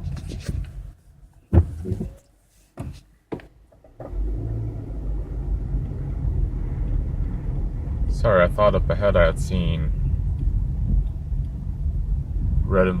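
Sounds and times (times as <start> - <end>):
car interior road rumble: 3.7 - 13.0.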